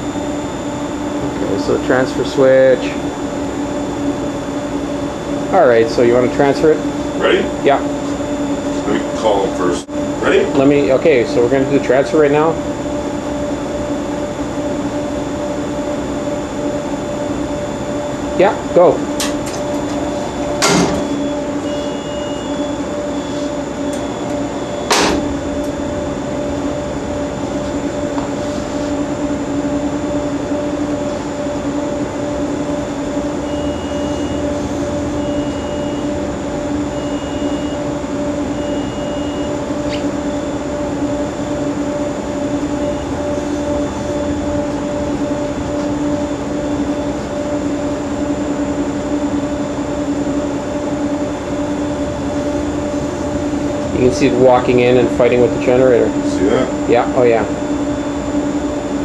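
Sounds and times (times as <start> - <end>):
electrical hum: 0.0 - 59.0
high alarm beeps: 3.8 - 28.2, 28.9 - 58.8
switch clunks: 23.9 - 25.3.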